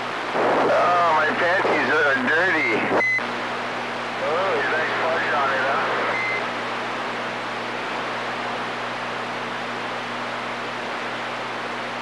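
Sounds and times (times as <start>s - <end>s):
radio static hiss: 0.0s - 6.6s.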